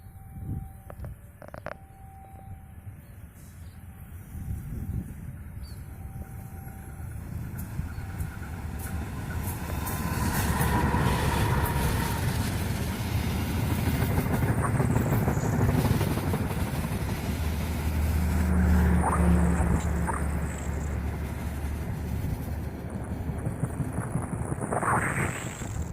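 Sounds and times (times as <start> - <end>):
train rumble: 0.0 - 25.9
low engine hum: 6.0 - 25.9.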